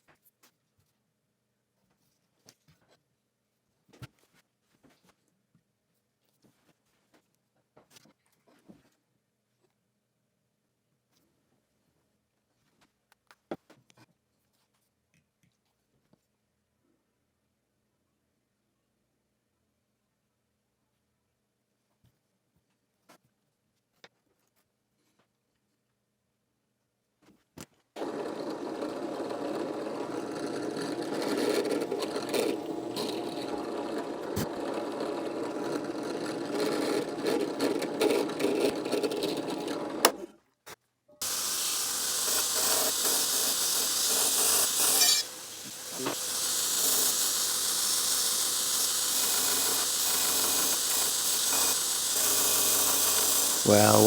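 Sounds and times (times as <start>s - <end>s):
power tool running: 28.0s - 40.2s, 41.2s - 54.0s
steady hissy noise: 41.2s - 54.0s.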